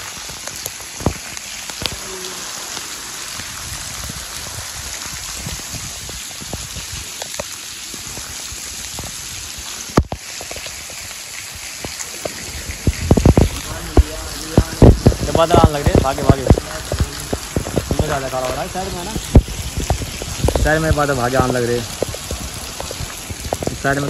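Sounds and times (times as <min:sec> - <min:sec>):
drips and splashes: 0:00.0 - 0:24.0
heavy rain pouring: 0:00.0 - 0:24.0.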